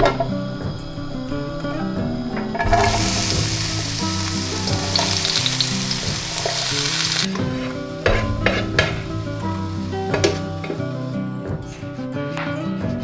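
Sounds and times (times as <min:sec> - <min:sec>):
onion sizzling in a frying pan: 0:00.0 - 0:11.4
pan knocks and scrapes: 0:02.4 - 0:03.7, 0:07.3 - 0:11.0.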